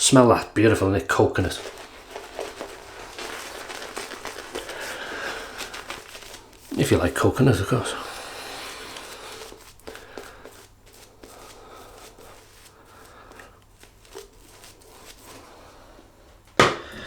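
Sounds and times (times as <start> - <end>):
razor scratching on skin: 7.6 - 15.0.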